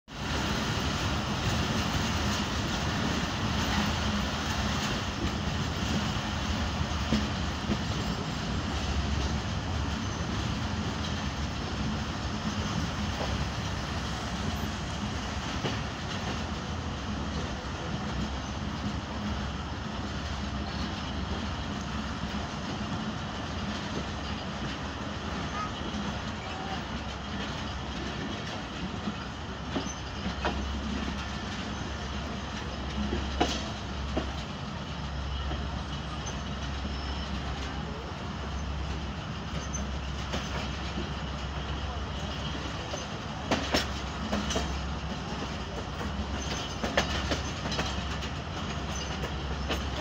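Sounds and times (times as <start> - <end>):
train wheels rumbling on rails: 0.1 - 50.0
wheels clicking over rail joints: 20.6 - 50.0.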